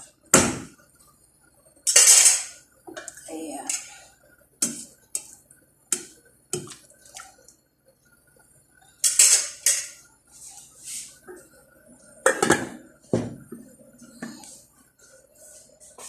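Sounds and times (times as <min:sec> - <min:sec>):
metal utensil scraping a pot: 0:03.7 - 0:04.0.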